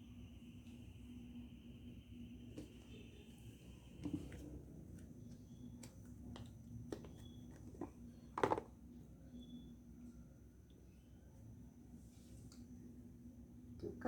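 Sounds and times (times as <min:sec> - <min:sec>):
soap bars knocking and clicking: 0:05.8 - 0:08.7.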